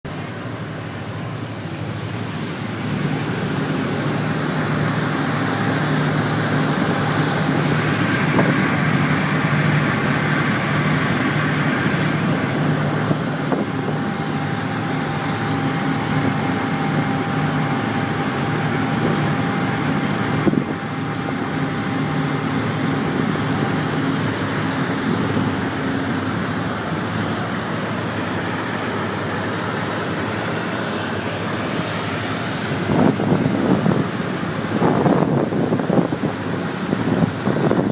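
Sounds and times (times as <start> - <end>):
ship engine drone: 0.0 - 37.9
wind on microphone: 18.1 - 20.9, 32.6 - 37.9.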